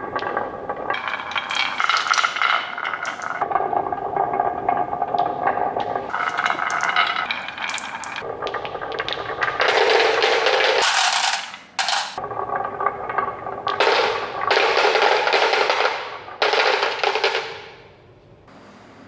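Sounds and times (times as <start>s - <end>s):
marbles clattering on wooden tracks: 0.9s - 3.4s, 6.1s - 8.2s, 9.1s - 12.2s, 13.7s - 17.7s.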